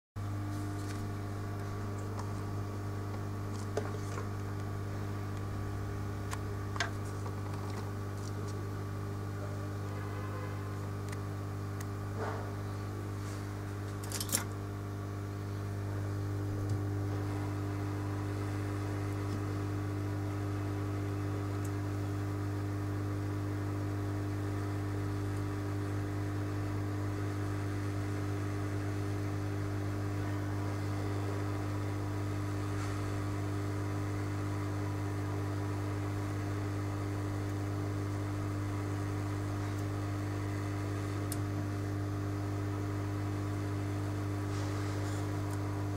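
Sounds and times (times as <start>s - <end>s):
low electrical hum: 0.2s - 45.9s.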